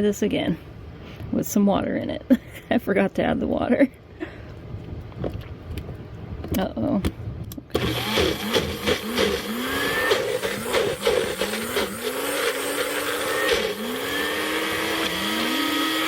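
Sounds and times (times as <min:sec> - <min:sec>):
blender motor whining: 0:07.7 - 0:16.0.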